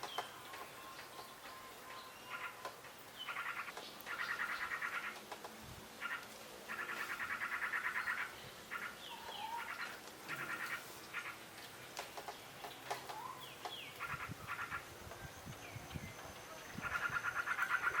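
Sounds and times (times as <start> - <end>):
birds rattling chatter: 0.0 - 18.0
birds slurred whistled notes: 12.4 - 18.0.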